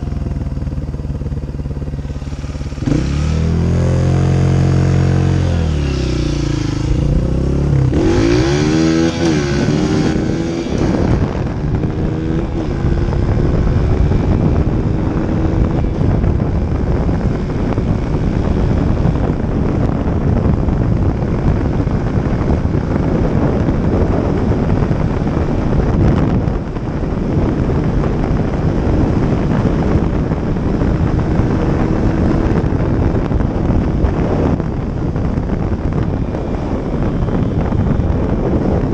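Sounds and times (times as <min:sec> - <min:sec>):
wind on microphone: 0:00.0 - 0:38.9
dirt bike engine revving: 0:01.2 - 0:19.1.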